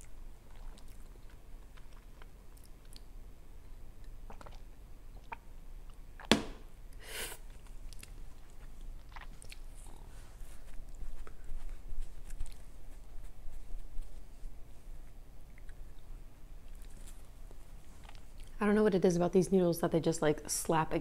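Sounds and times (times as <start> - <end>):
mouth chewing and swallowing: 0.0 - 6.3, 7.4 - 13.1, 15.0 - 18.6
sharp knock: 6.3 - 6.6.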